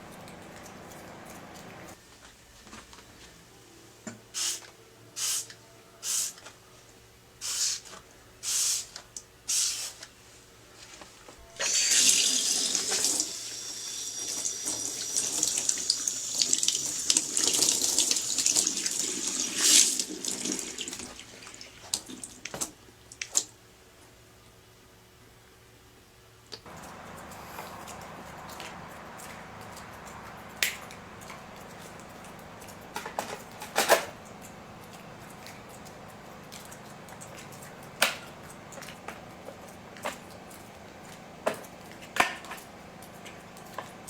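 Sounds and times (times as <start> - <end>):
tap water running: 11.6 - 22.7.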